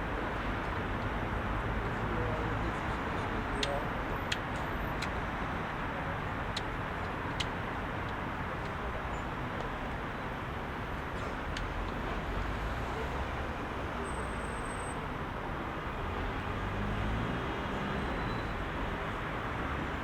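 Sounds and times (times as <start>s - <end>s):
heavy city traffic: 0.0s - 20.0s.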